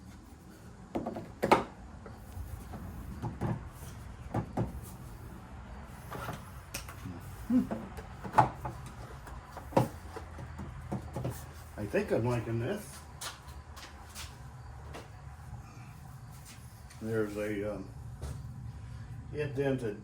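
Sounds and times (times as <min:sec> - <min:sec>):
shelving parts knocking and clacking: 0:02.6 - 0:05.0, 0:07.6 - 0:11.6.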